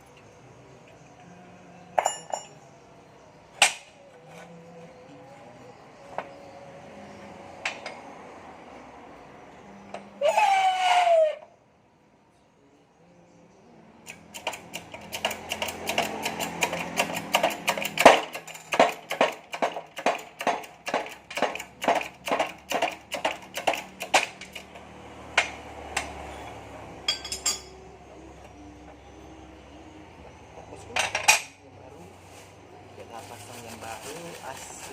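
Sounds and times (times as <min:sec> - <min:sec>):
sharp metallic hand tool clicks: 0:14.0 - 0:24.7.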